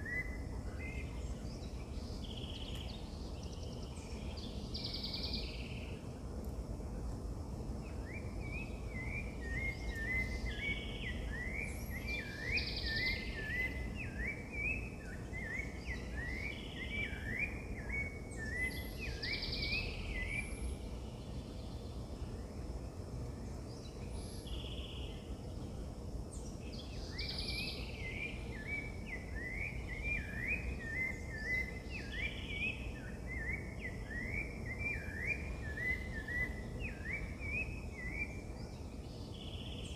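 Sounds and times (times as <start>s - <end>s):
bird singing rising notes: 7.8s - 22.0s, 26.4s - 39.9s.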